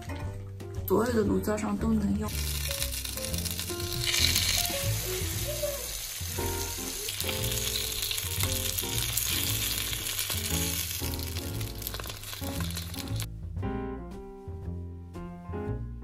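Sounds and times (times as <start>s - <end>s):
background music: 0.0s - 16.0s
food sizzling in frying pan: 2.3s - 13.3s.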